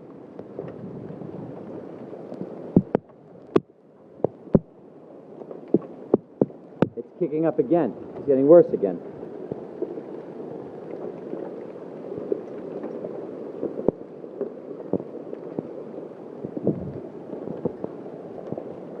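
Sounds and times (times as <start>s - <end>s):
heavy rain hiss: 4.4s - 19.0s.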